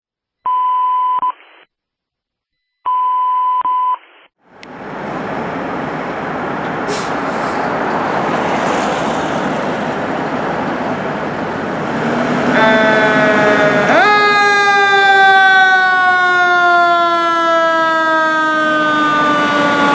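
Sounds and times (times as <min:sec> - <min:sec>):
fire engine and road noise: 0:04.4 - 0:19.9.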